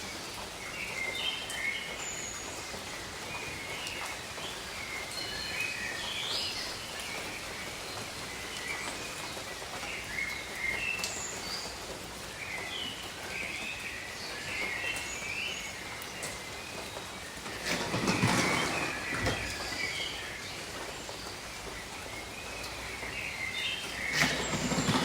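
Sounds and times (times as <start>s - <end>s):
steady rain: 0.0s - 25.0s
birds chirping: 13.6s - 25.0s.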